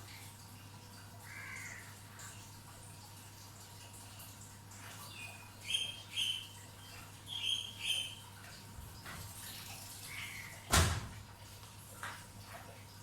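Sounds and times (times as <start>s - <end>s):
bird chirping: 5.1s - 6.5s, 7.3s - 8.2s.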